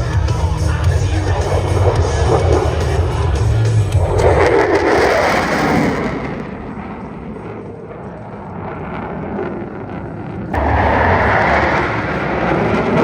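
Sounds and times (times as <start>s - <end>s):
fighter jet roar: 0.0s - 13.0s.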